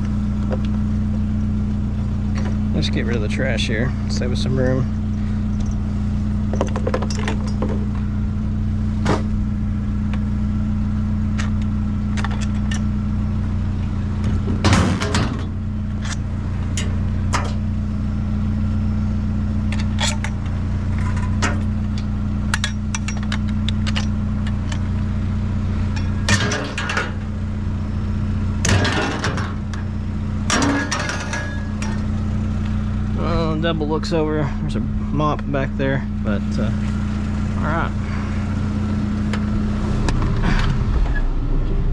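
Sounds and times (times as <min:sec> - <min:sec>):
vehicle engine idling: 0:00.0 - 0:41.9
scrap knocking and clanking: 0:06.5 - 0:08.0, 0:30.5 - 0:32.1.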